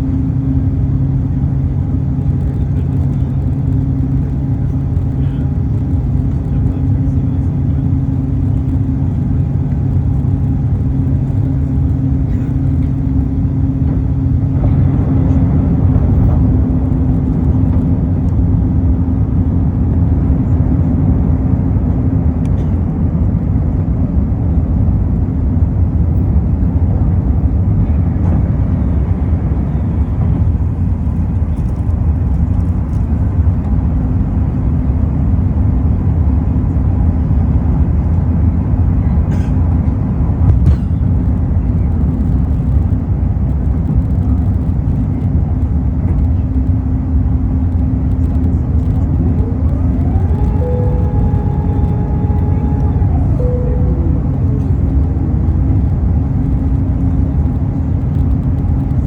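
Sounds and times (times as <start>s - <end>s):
low hum: 0.0s - 27.0s, 43.6s - 59.0s
loud low engine rumble: 0.0s - 59.0s.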